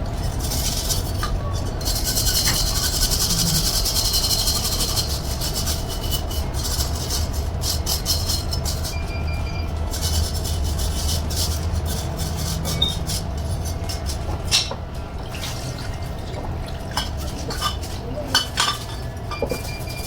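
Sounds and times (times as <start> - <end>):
steady low hum: 0.0 - 20.0
rasping scraping strokes: 0.2 - 9.0, 9.8 - 14.6.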